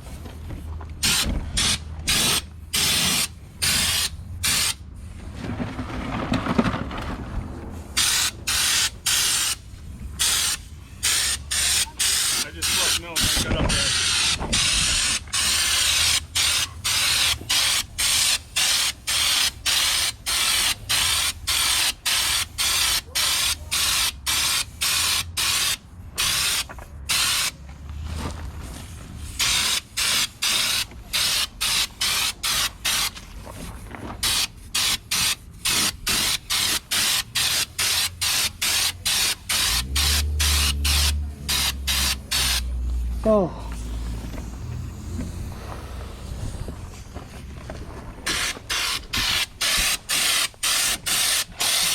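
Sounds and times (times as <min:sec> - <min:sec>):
spray gun hissing in bursts: 0:01.0 - 0:04.8, 0:08.0 - 0:27.5, 0:29.4 - 0:33.1, 0:34.2 - 0:42.8, 0:48.3 - 0:51.9.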